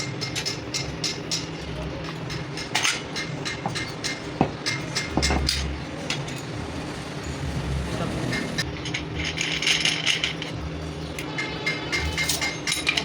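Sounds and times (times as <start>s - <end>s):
steady low hum: 4.6s - 11.3s
tools clinking on metal: 11.2s - 13.0s.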